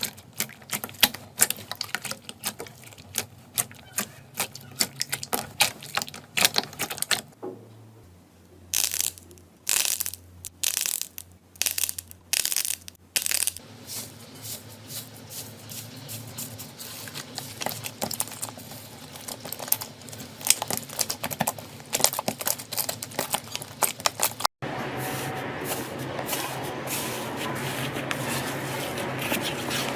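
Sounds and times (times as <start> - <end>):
slime squishing: 0.0 - 7.4, 8.8 - 24.5
slime crackling: 16.3 - 24.5.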